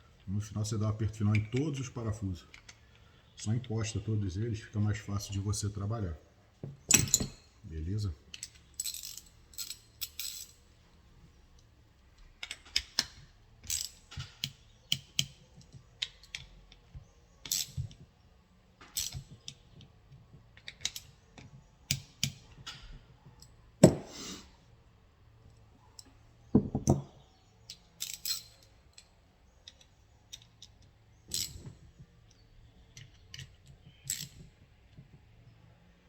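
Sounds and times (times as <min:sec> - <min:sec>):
metal clinks: 0:06.9 - 0:07.6
ratchet clicks: 0:13.7 - 0:15.4, 0:29.6 - 0:31.6, 0:33.0 - 0:34.5
sharp metal knock: 0:23.8 - 0:24.1.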